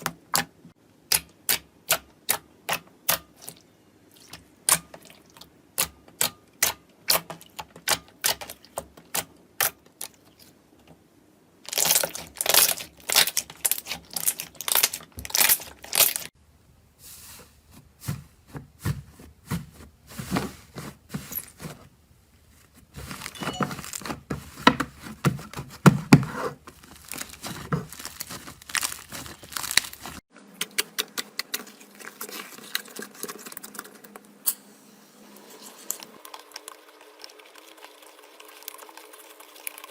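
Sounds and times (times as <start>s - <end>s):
slime crackling and popping: 11.7s - 16.3s, 26.8s - 30.2s.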